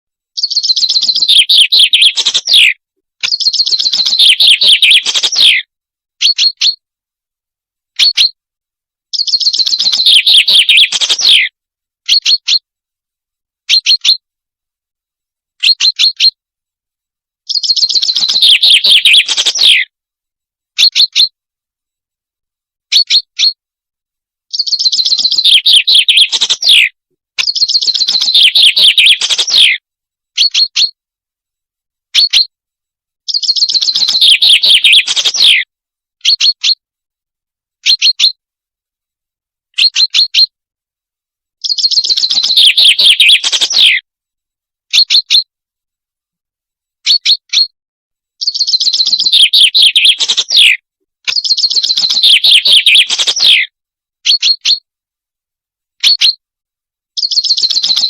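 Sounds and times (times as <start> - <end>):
bird trills and chirps: 0.3 - 6.8, 7.9 - 8.4, 9.1 - 11.5, 12.1 - 12.6, 13.7 - 14.2, 15.6 - 16.4, 17.4 - 19.9, 20.8 - 21.4, 22.9 - 23.6, 24.5 - 29.8, 30.4 - 31.0, 32.1 - 32.5, 33.3 - 36.8, 37.8 - 38.4, 39.7 - 40.5, 41.6 - 44.0, 44.9 - 45.5, 47.0 - 47.7, 48.4 - 54.8, 56.0 - 56.4, 57.2 - 58.0.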